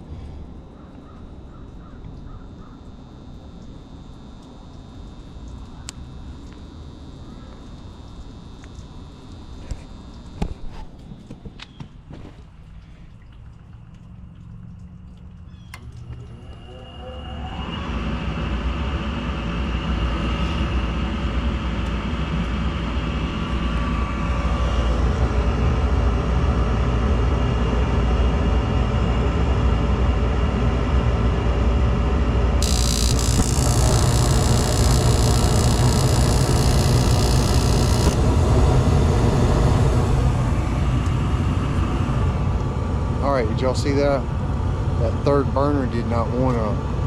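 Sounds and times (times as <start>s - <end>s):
furnace fan motor humming: 0.0s - 11.4s, 32.6s - 44.0s.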